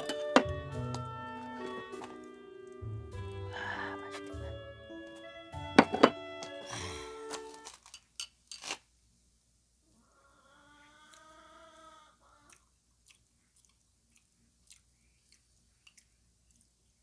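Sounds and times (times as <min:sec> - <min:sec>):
person humming: 0:02.9 - 0:04.8, 0:05.8 - 0:07.6
person chewing with mouth clicks: 0:12.4 - 0:16.8.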